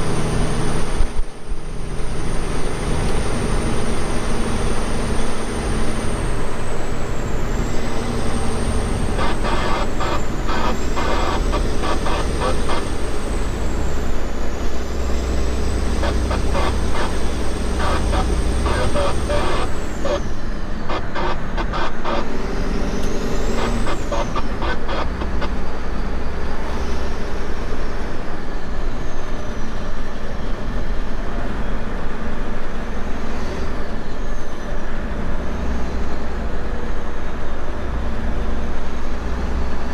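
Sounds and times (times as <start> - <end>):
high whine: 0.0 - 28.3
truck engine rumble: 0.0 - 39.9.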